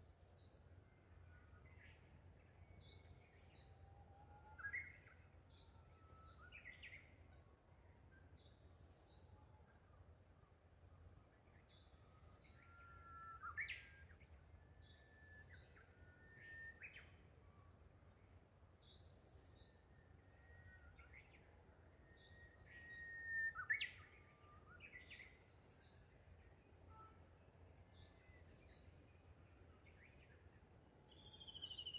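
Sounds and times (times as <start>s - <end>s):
whistled bird notes: 11.8s - 17.2s, 22.1s - 26.2s, 31.0s - 31.9s
small birds twittering: 31.1s - 31.9s.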